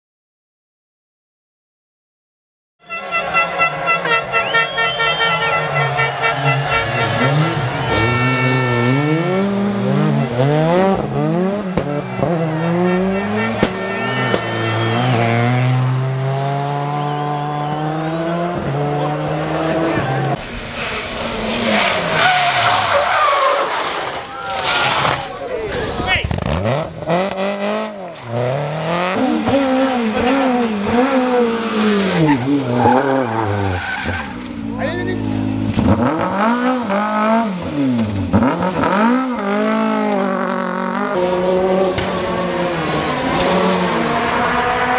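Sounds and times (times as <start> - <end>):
tyre and road noise: 2.9 - 44.9
rally car engine revving: 3.0 - 44.9
tyre squeal: 20.8 - 26.0, 31.2 - 34.5.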